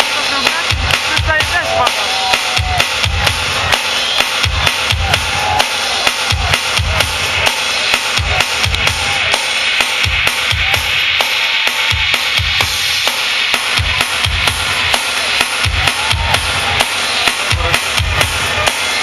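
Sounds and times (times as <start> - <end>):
electronic dance music: 0.0 - 19.0
kick drum: 0.5 - 3.8, 4.4 - 5.7, 6.3 - 7.2, 15.6 - 16.6.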